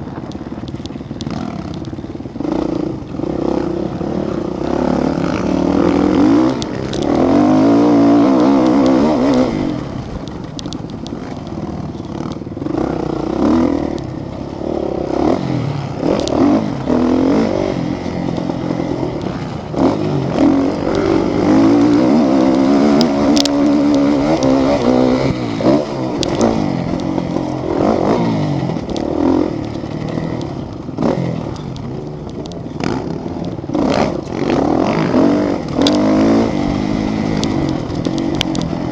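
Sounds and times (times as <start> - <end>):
sharp clicks and clatter: 0.0 - 14.5, 15.2 - 38.9
motorcycle engines revving: 0.0 - 38.9.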